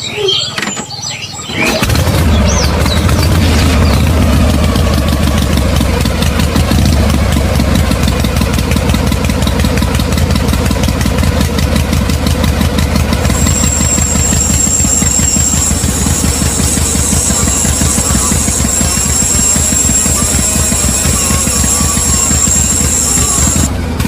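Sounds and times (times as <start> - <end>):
small motor humming: 13.1 - 23.8
high thin whine: 13.3 - 23.7.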